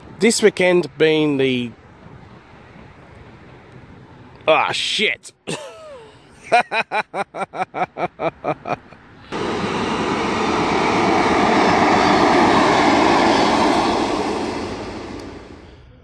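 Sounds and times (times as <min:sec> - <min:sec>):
man laughing: 0:05.4 - 0:09.0
train passing rumble: 0:09.0 - 0:16.0.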